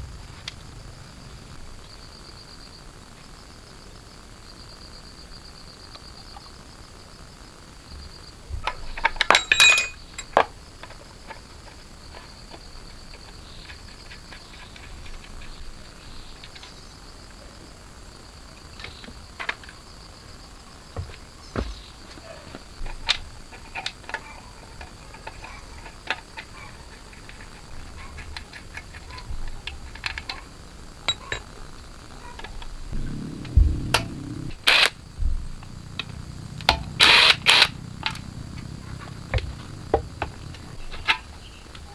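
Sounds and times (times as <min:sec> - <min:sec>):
insects chirring: 0:00.0 - 0:41.9
metal tools clinking: 0:09.2 - 0:10.4.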